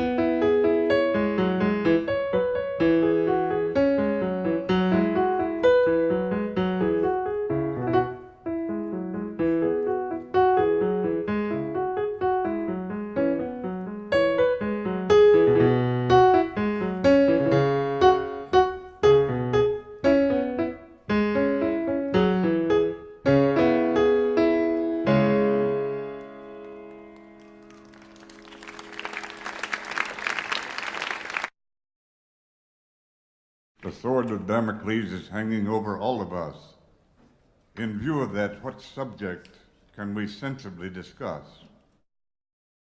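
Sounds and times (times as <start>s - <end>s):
solo piano music: 0.0s - 29.7s.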